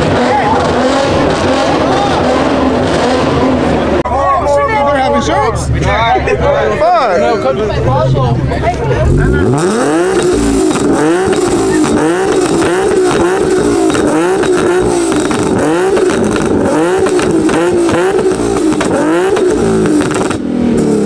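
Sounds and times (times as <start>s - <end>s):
car engine revving on limiter: 0.0s - 4.0s, 9.0s - 21.0s
exhaust crackling pops: 10.0s - 21.0s.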